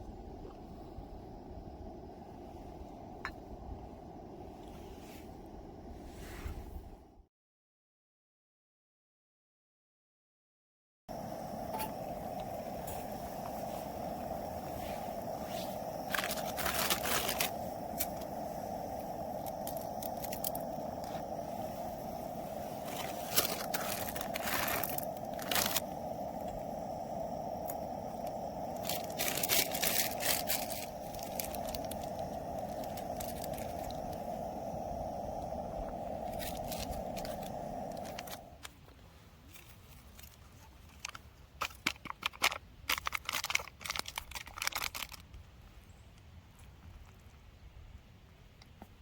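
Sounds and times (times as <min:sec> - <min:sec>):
gas burner hissing: 0:00.0 - 0:07.2, 0:11.1 - 0:38.8
clicking and crinkling handling noises: 0:36.4 - 0:45.5.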